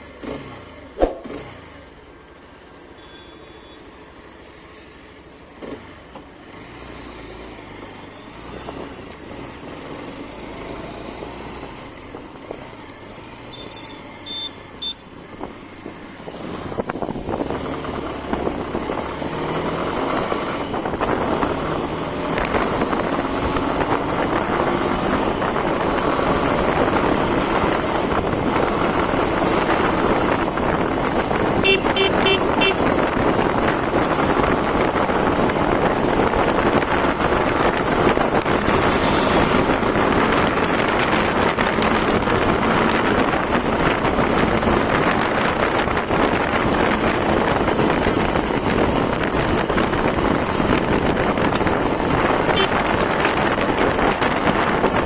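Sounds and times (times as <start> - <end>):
road and wind noise: 0.0 - 55.0
motorcycle engine running: 13.8 - 55.0.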